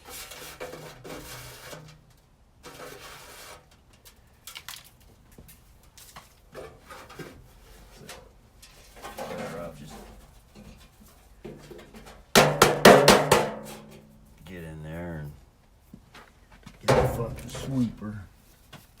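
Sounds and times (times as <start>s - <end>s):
rustle: 0.0s - 12.3s, 13.5s - 19.0s
handling knocks and rubbing: 15.9s - 19.0s.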